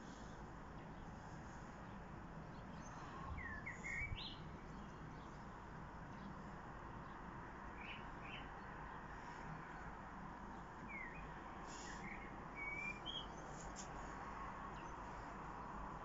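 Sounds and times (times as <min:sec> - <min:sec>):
faint songbird chirps: 0:00.0 - 0:16.0
outdoor background noise: 0:00.0 - 0:16.0
whistled bird note: 0:10.9 - 0:13.4.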